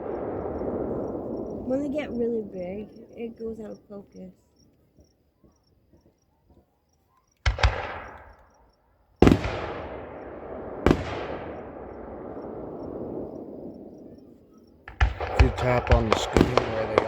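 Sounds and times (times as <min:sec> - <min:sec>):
fireworks bangs with echo: 0:00.0 - 0:03.0, 0:07.5 - 0:08.4, 0:09.2 - 0:17.0.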